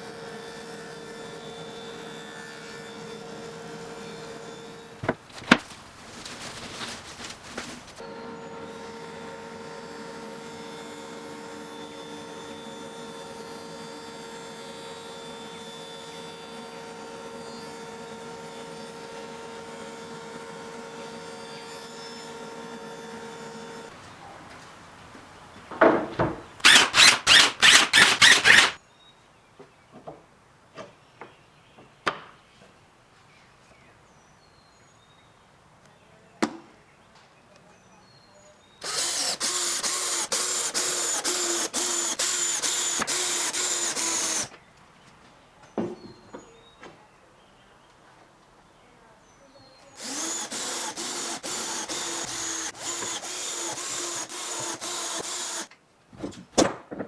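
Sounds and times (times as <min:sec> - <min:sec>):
power tool running: 0:08.0 - 0:23.9, 0:26.6 - 0:28.8, 0:38.8 - 0:44.5, 0:49.9 - 0:55.7
loud strokes: 0:26.6 - 0:28.8.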